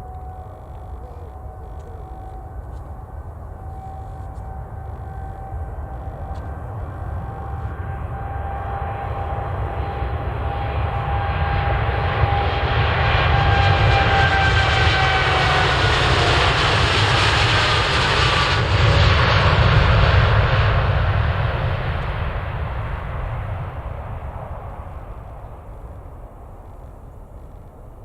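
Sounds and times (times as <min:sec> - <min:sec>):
whining tones sliding down: 0:00.0 - 0:08.8
deep rumble: 0:00.0 - 0:28.0
jet engines at take-off thrust: 0:00.0 - 0:28.0.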